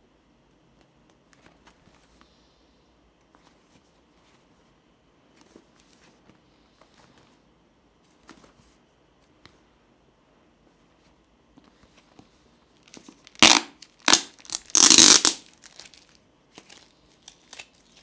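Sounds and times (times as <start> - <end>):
room hiss: 0.0 - 18.0
packaging rustling: 12.8 - 18.0.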